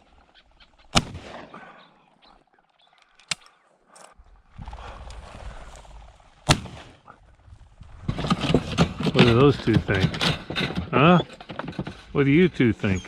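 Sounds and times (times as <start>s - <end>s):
sharp cracks: 0.9s - 1.6s, 6.4s - 7.0s.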